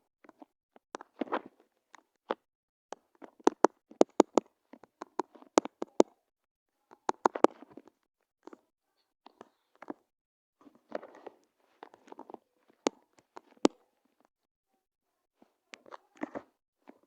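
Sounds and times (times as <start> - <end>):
sharp clicks and taps: 3.3 - 6.1, 6.9 - 7.9.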